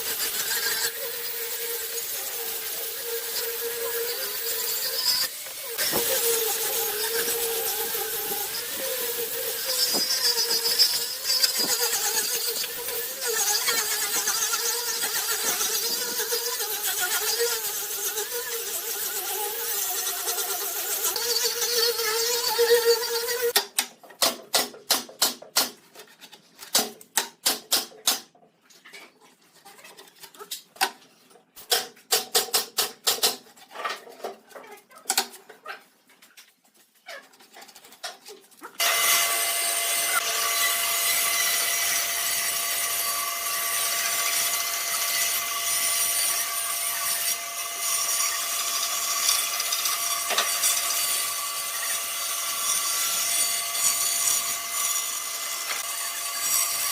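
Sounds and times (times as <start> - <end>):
power tool whining: 0.0 - 23.6, 38.8 - 56.9.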